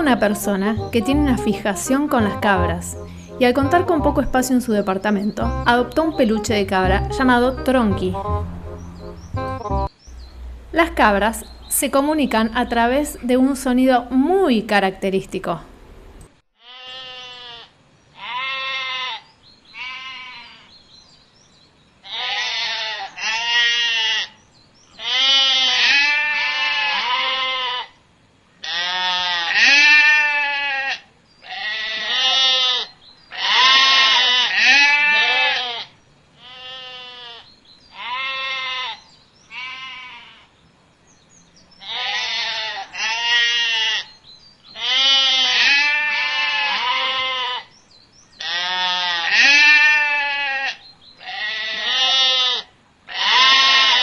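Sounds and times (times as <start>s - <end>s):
goats bleating: 28.6s - 35.8s, 41.8s - 44.0s, 44.8s - 47.7s, 48.4s - 54.0s.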